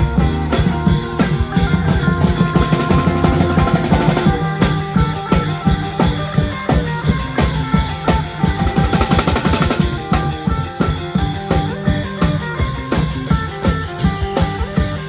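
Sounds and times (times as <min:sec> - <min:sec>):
drum roll: 0:00.0 - 0:15.0
fast drum beat: 0:00.0 - 0:15.0
held melody: 0:00.0 - 0:15.0.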